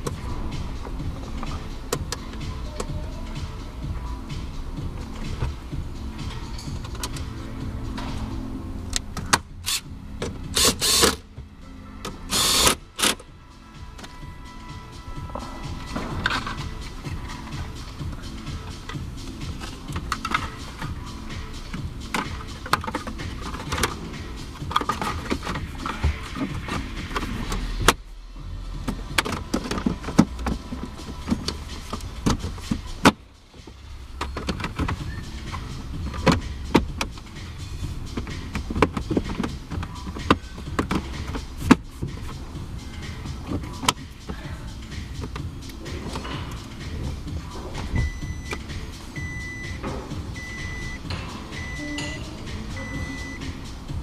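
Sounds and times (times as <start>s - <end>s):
tools clicking and knocking: 18.7s - 21.0s, 21.7s - 28.0s, 38.1s - 42.2s.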